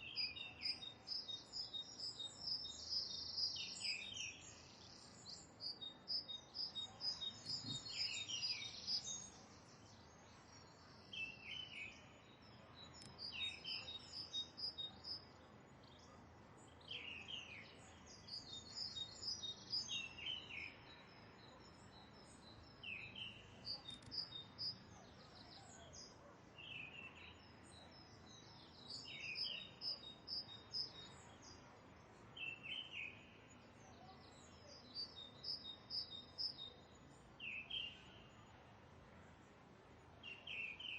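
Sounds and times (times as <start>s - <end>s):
birds chirping: 0.0s - 31.6s.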